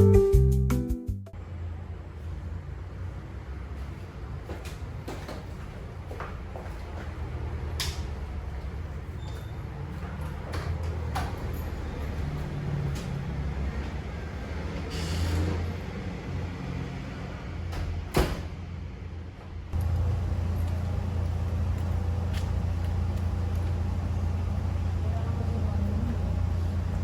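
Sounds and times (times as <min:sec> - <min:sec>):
vehicle rumble and road noise: 0:01.4 - 0:27.0.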